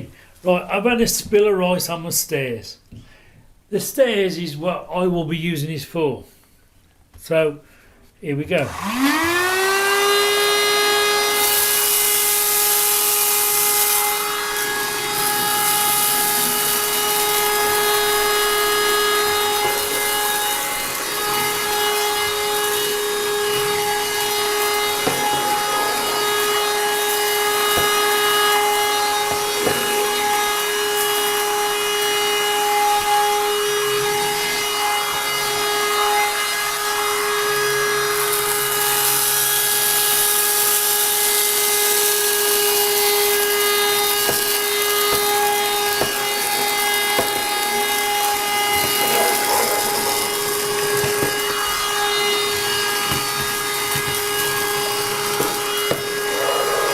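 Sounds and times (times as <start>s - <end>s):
vacuum cleaner motor whine: 8.6s - 56.9s
hiss of air and debris: 53.5s - 56.9s.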